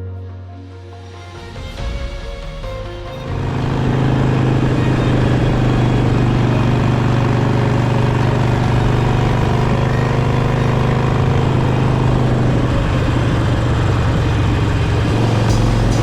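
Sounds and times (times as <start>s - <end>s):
motorcycle engine running steadily: 3.5s - 16.0s.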